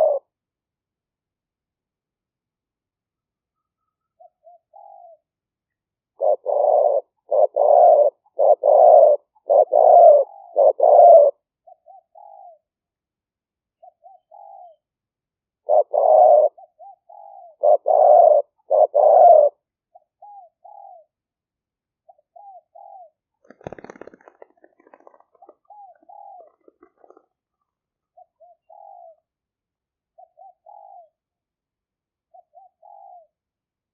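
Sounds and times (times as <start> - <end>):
dove cooing: 0.0 - 0.3, 4.2 - 5.2, 6.2 - 12.6, 13.8 - 14.8, 15.6 - 19.6, 20.2 - 21.1, 22.1 - 27.4, 28.2 - 29.2, 30.2 - 31.2, 32.3 - 33.4.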